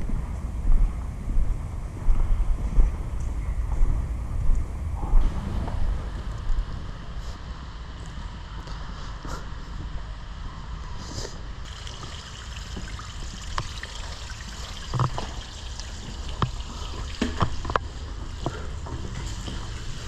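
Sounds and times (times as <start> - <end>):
water trickling through drain tunnel: 11.6 - 20.0.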